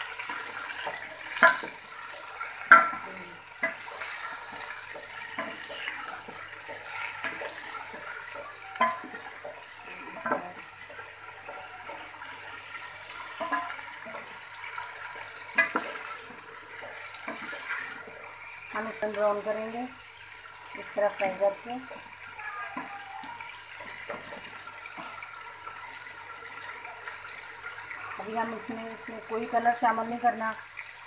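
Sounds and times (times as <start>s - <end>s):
chicken sizzling in hot oil: 0.0s - 31.0s
spoon scraping and knocking a pot: 13.4s - 14.2s.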